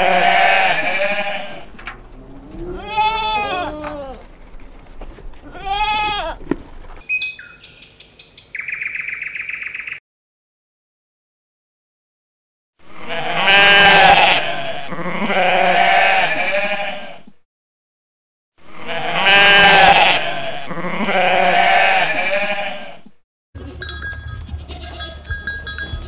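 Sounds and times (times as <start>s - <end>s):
sheep bleating: 0.0s - 4.4s, 5.4s - 6.4s, 13.0s - 17.3s, 18.8s - 23.0s, 23.6s - 26.0s
low hum: 1.5s - 5.5s
small bells clinking: 23.6s - 26.0s.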